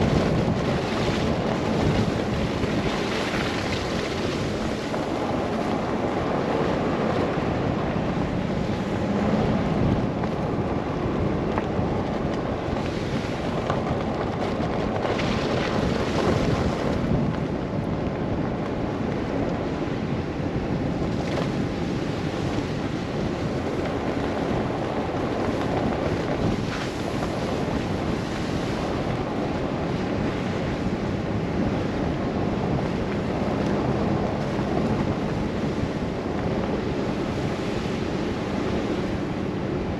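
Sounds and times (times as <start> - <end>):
rushing wind: 0.0 - 39.9.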